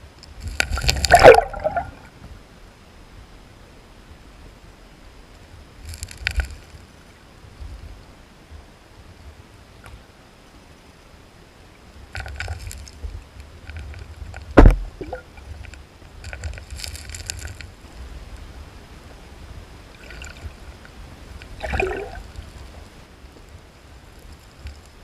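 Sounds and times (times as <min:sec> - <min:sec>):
water splashing and sloshing: 0:00.3 - 0:02.4, 0:12.0 - 0:18.1, 0:19.8 - 0:23.5
sharp loud thump: 0:14.6 - 0:14.9.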